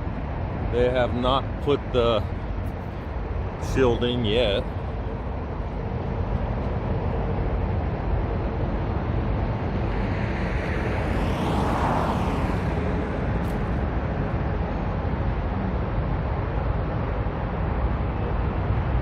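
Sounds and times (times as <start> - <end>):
low rumble of wind: 0.0 - 19.0
vehicle passing: 8.8 - 14.6.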